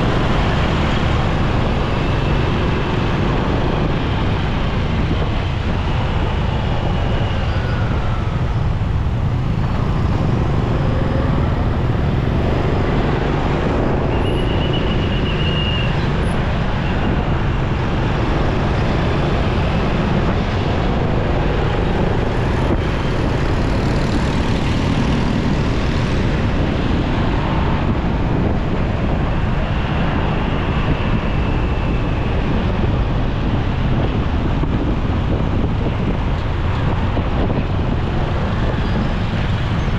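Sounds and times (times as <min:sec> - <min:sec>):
motorcycle engine riding: 0:00.0 - 0:14.0
city traffic: 0:00.0 - 0:39.9.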